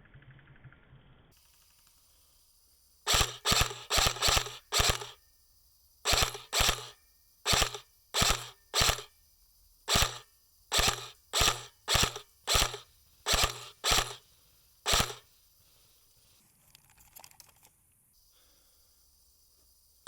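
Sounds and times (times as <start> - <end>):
airsoft rifle firing single shots: 3.1 - 5.2, 6.1 - 9.1, 9.9 - 14.2, 14.9 - 15.2.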